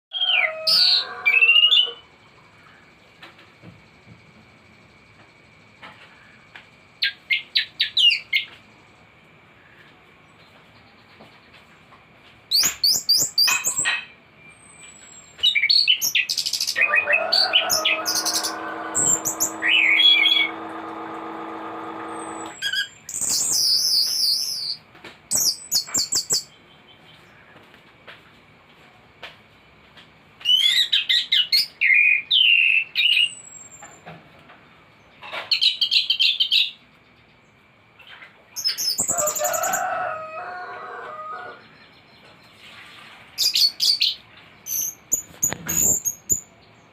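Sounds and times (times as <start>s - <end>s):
thrush song trills and whistles: 16.7s - 24.8s
low buzzy bird phrase: 16.8s - 22.6s.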